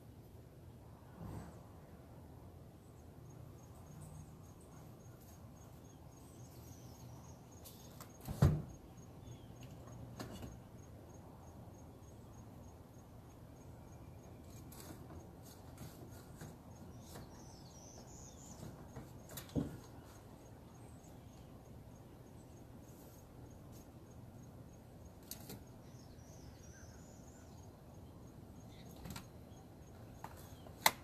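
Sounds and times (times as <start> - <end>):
faint bird chirps: 15.8 - 30.8.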